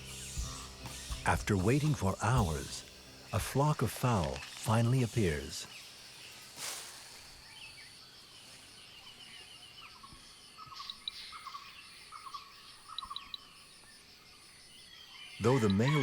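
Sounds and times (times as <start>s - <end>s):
birds calling: 0.0s - 8.0s, 15.4s - 16.0s
insects trilling: 0.0s - 16.0s.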